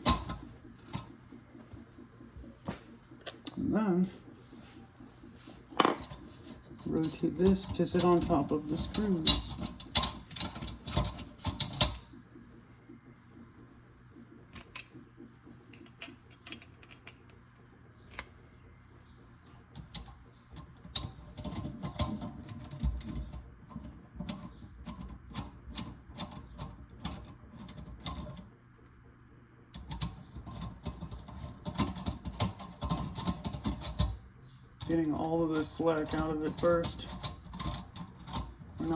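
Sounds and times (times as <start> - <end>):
metal clicks and rattles: 0.0 - 1.2, 5.7 - 12.1, 15.7 - 17.4, 19.7 - 28.5, 29.7 - 34.2, 34.8 - 38.9.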